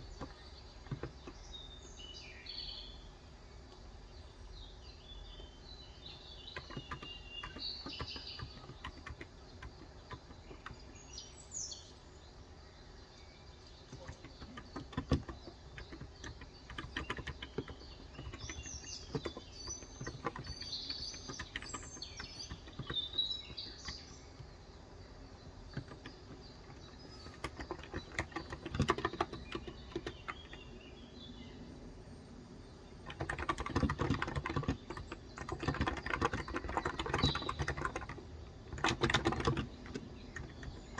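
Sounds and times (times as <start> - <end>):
small birds chirping: 0.0 - 40.9
keyboard typing: 6.5 - 10.9, 13.9 - 24.6, 25.5 - 30.7, 33.0 - 40.9.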